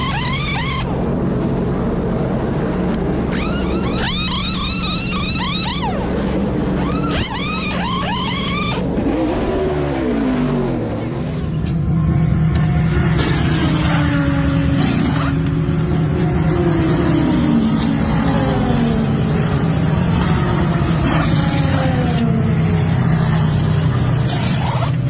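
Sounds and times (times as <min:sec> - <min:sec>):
pneumatic wheel guns whining: 0:00.0 - 0:00.9, 0:03.3 - 0:06.1, 0:06.8 - 0:08.8, 0:21.0 - 0:22.3, 0:24.2 - 0:25.0
race car engine: 0:00.0 - 0:25.0.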